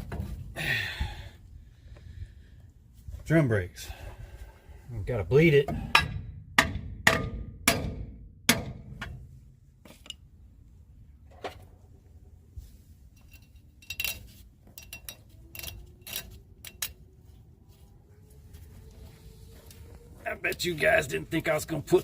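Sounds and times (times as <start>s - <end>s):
metal tools clanking: 13.1s - 17.0s.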